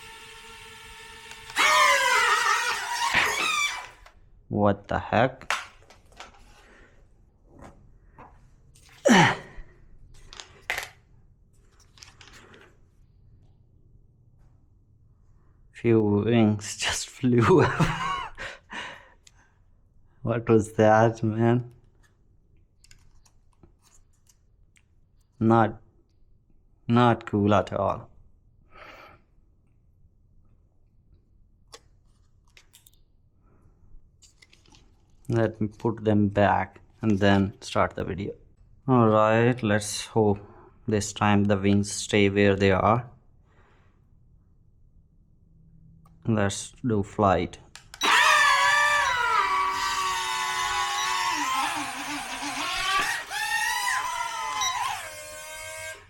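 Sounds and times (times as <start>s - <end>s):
drone motors whirring down: 0.0s - 4.0s, 48.0s - 56.0s.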